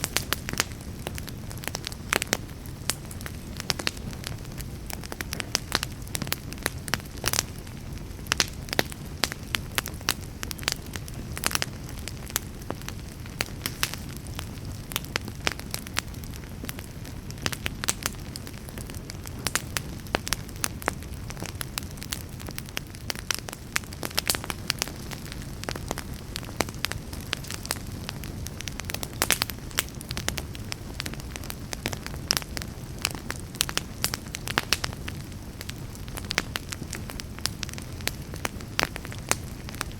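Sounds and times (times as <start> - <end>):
fire crackling and popping: 0.0 - 39.9
low rush of flames: 0.0 - 39.9.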